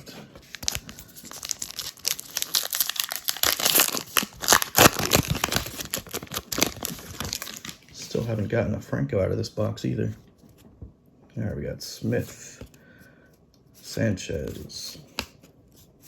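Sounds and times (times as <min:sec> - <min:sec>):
wrapper tearing and crinkling: 0:00.5 - 0:07.9.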